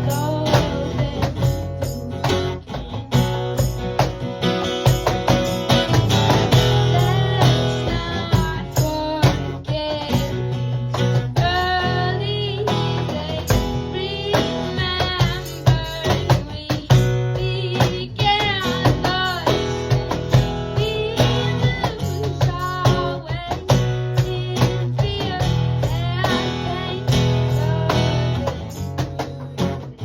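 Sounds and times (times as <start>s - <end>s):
cajon beat: 0.0s - 30.0s
guitar melody: 0.0s - 30.0s.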